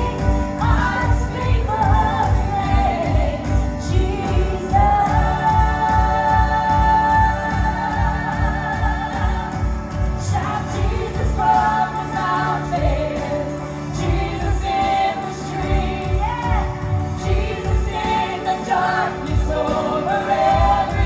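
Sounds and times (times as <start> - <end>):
band playing steady beat: 0.0 - 21.0.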